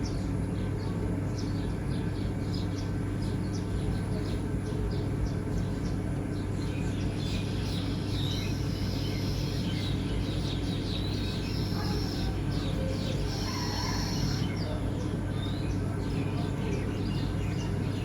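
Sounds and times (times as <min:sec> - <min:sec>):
small birds chirping: 0:00.0 - 0:18.0
steady low hum: 0:00.0 - 0:18.0
whistled bird notes: 0:07.3 - 0:14.8.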